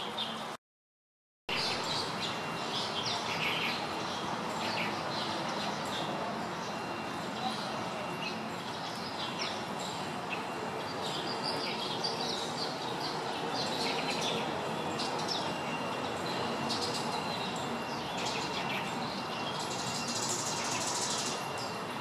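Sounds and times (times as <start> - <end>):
small birds chirping: 1.6 - 21.8.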